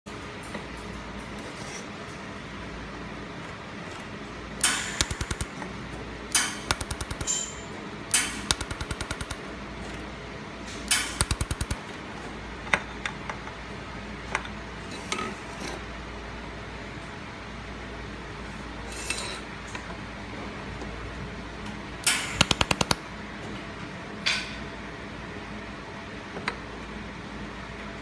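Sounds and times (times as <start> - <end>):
single clicks: 4.6 - 5.5, 6.7 - 7.4, 8.1 - 9.4, 10.9 - 11.8
laser welder crackling pops: 4.6 - 5.6, 6.7 - 7.4, 8.5 - 9.4, 10.9 - 11.8, 22.2 - 23.0.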